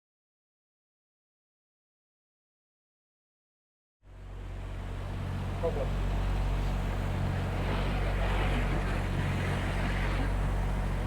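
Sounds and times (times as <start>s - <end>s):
vehicle engine droning: 4.1s - 11.0s.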